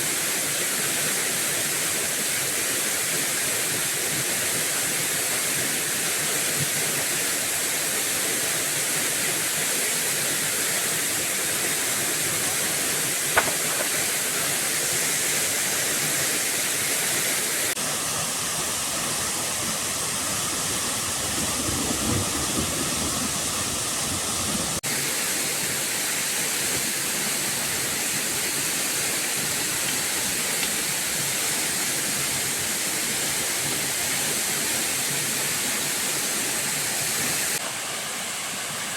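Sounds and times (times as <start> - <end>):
falling water rushing: 0.0 - 38.9
sharp click: 13.4 - 14.0.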